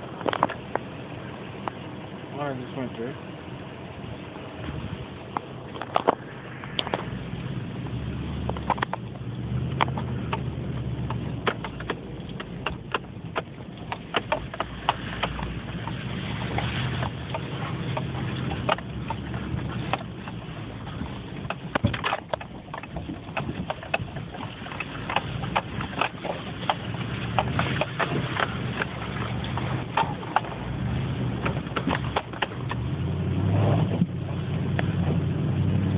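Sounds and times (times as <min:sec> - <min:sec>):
tires clicking over stones: 0:00.0 - 0:35.9
truck engine running: 0:00.0 - 0:35.9.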